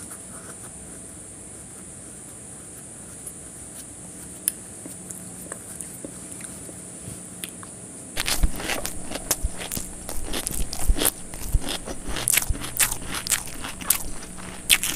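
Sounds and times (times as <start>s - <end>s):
wet chewing and lip-smacking: 7.4s - 14.9s.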